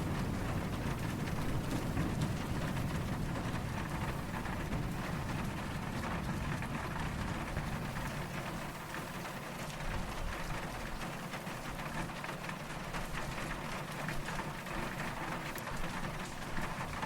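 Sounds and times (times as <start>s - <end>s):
distant thunder rumble: 0.0s - 11.6s
steady rain falling: 0.0s - 17.0s.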